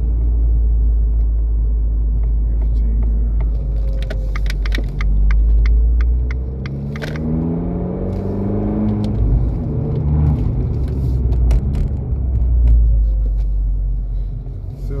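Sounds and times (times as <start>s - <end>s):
car engine accelerating: 0.0s - 15.0s
sharp clicks: 3.6s - 7.3s.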